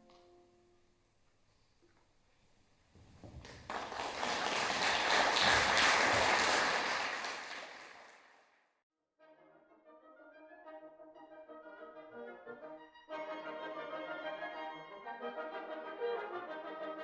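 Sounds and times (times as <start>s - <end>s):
audience applauding: 3.4s - 8.4s.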